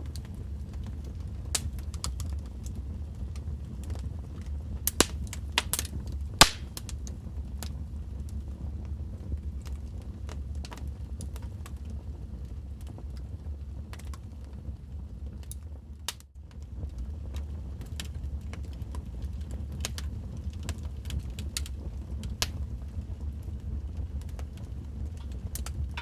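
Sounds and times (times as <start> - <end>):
fire crackling and popping: 0.0 - 26.0
fire rumbling: 0.0 - 26.0.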